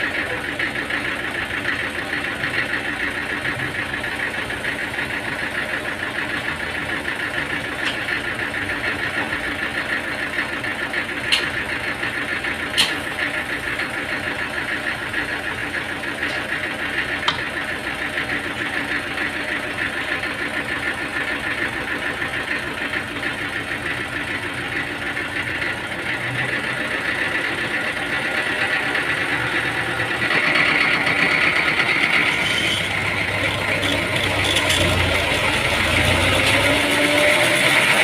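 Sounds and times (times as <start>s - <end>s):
machinery engine pulsing: 0.0s - 38.0s.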